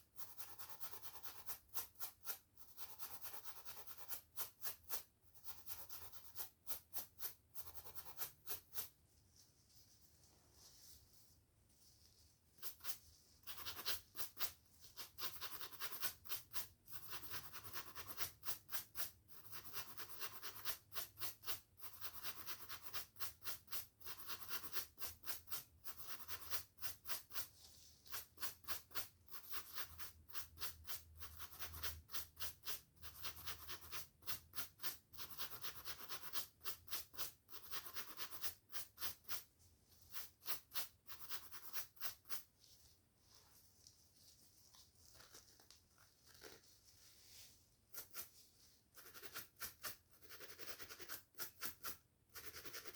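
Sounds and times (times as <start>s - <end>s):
scalp scratching: 0.1s - 9.0s, 12.0s - 52.9s
hair brushing strokes: 39.2s - 50.0s.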